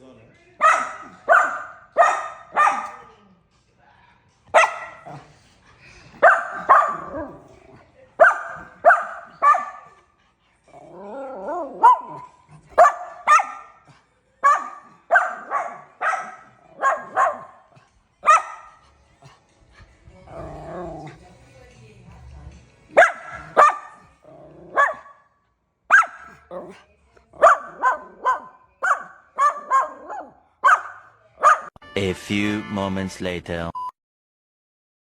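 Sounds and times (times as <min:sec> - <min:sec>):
puppy barking: 0:00.6 - 0:03.1, 0:04.5 - 0:05.3, 0:06.2 - 0:07.6, 0:08.2 - 0:10.0, 0:11.2 - 0:18.8, 0:22.9 - 0:25.3, 0:25.9 - 0:26.8, 0:27.4 - 0:31.8.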